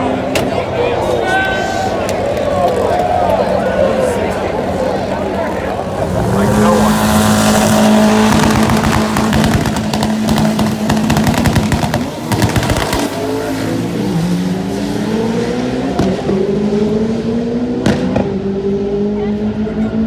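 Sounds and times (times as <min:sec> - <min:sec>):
car engine revving: 0:03.5 - 0:20.0
car engine pops and bangs: 0:07.8 - 0:13.2, 0:15.9 - 0:16.5, 0:17.8 - 0:18.4.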